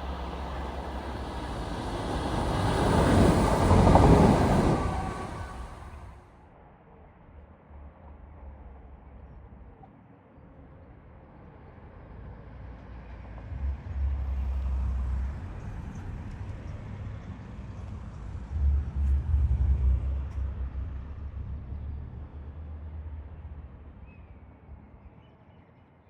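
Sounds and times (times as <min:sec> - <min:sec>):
train passing: 0:00.0 - 0:06.2.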